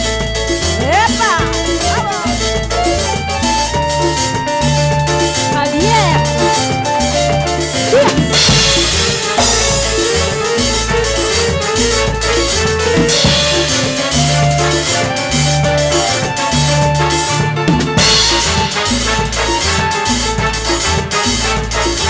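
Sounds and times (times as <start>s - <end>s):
melody: 0.0s - 20.5s
drum kit: 0.0s - 22.0s
steady bass line: 0.0s - 22.0s.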